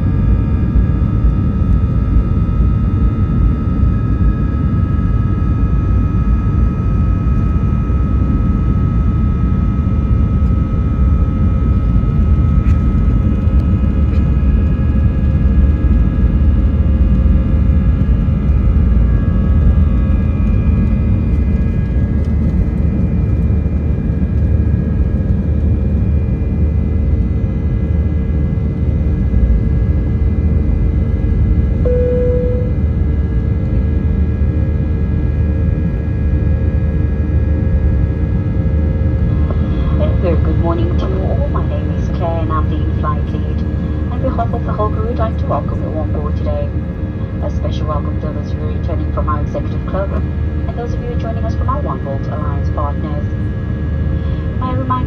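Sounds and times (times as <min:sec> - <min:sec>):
jet engines rumbling in cabin: 0:00.0 - 0:55.0
whining fan tones: 0:31.6 - 0:33.3.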